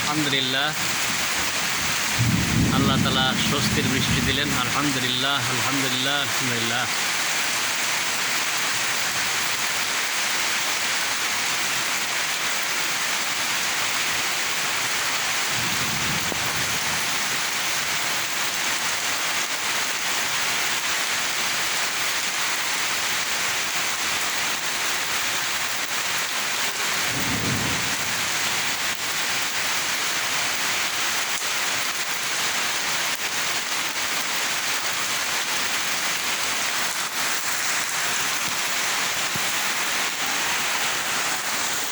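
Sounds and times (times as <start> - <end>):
steady rain falling: 0.0 - 41.9
low rumbles of thunder: 0.8 - 4.9, 15.5 - 18.1, 26.9 - 29.0.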